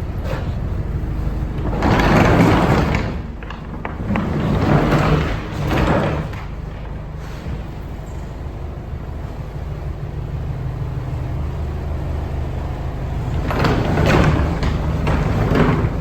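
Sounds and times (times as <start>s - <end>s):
roll-up door rattling: 1.4s - 7.3s, 13.2s - 16.0s
low engine hum: 6.4s - 16.0s.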